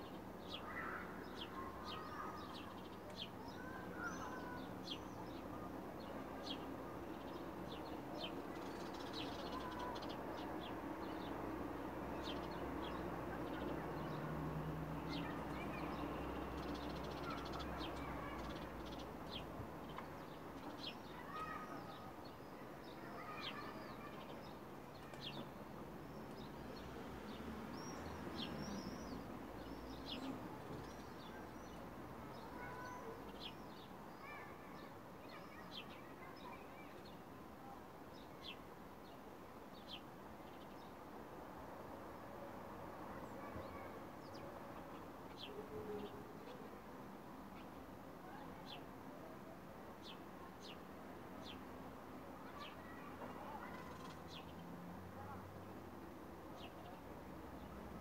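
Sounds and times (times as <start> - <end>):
birds chirping: 0.0 - 11.4, 15.0 - 26.8, 27.7 - 37.2, 52.5 - 54.5.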